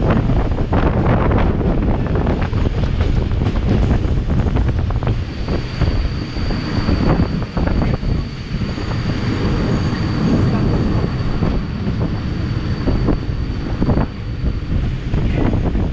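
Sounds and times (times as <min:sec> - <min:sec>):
moving train rumble: 0:00.0 - 0:15.9
wind buffeting microphone: 0:00.0 - 0:15.9
wheels knocking on track: 0:00.9 - 0:05.8
thin high whine: 0:04.6 - 0:15.6.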